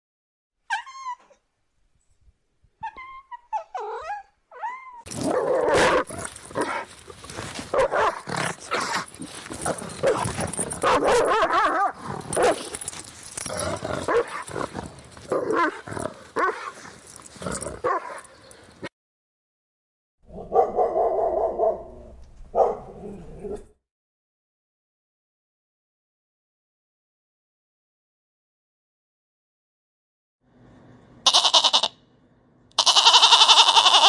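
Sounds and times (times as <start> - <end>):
dogs barking: 5.2 - 12.8, 14.0 - 14.7, 15.3 - 16.8, 17.5 - 18.6, 20.3 - 21.9, 22.5 - 23.6
cat meowing: 31.3 - 31.9, 32.8 - 34.0.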